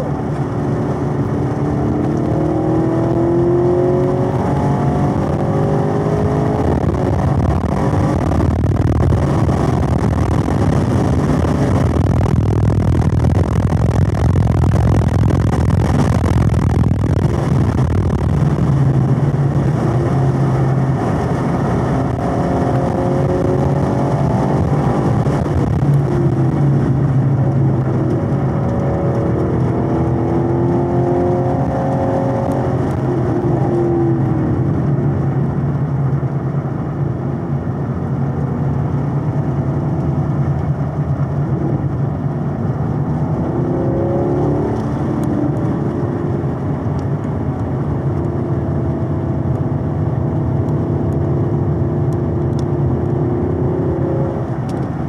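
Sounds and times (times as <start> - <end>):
car engine running hard: 0.0 - 55.0
wind and tyre noise: 0.0 - 55.0.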